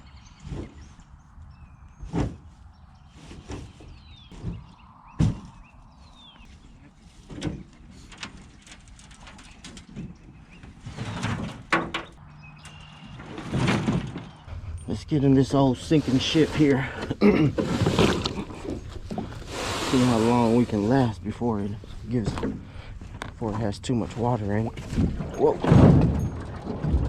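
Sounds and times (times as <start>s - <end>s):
knocks and thumps: 3.3s - 5.6s, 24.8s - 27.0s.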